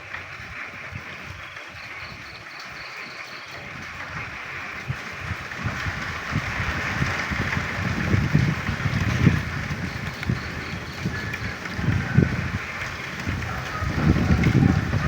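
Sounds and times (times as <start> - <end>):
rain: 0.0 - 15.0
wind buffeting microphone: 0.0 - 15.0
frogs croaking: 0.9 - 5.6, 8.6 - 15.0.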